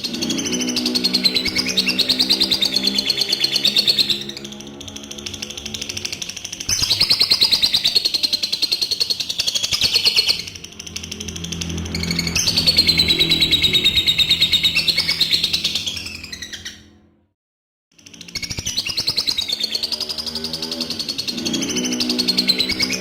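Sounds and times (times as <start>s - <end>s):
lovebird chattering trill: 0.0s - 16.8s.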